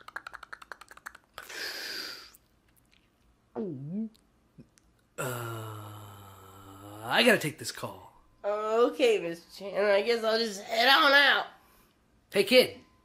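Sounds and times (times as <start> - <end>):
person humming: 3.6 - 4.2, 5.2 - 7.0.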